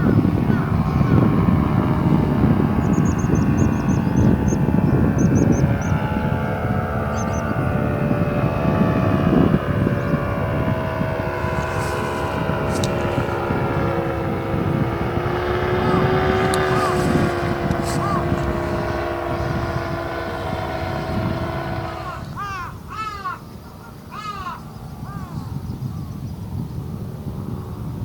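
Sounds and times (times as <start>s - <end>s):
paramotor engine droning overhead: 0.0s - 28.0s
short bird calls: 15.7s - 19.8s.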